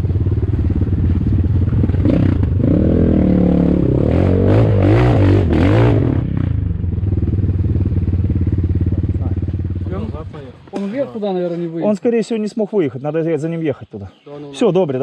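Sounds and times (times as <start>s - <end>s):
motorcycle engine idling: 0.0s - 2.7s, 6.2s - 11.7s
dirt bike revving: 0.0s - 10.8s.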